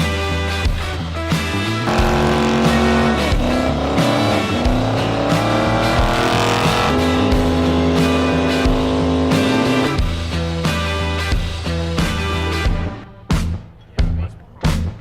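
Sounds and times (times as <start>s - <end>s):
rock music: 0.0s - 15.0s
car engine revving: 1.7s - 10.4s.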